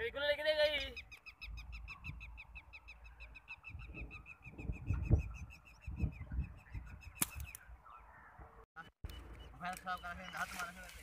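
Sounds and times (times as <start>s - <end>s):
wind rumbling on microphone: 3.6s - 8.6s.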